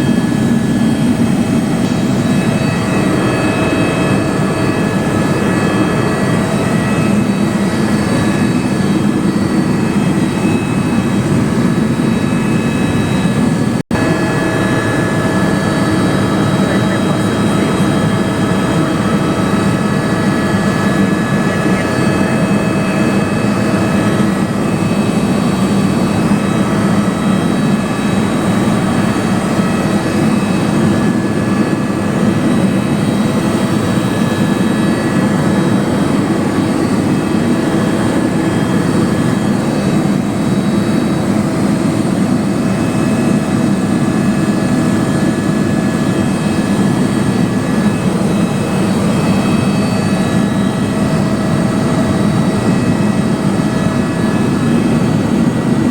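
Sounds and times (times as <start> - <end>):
high whining tones: 0.0 - 44.2
helicopter engine and rotor noise: 0.0 - 55.9.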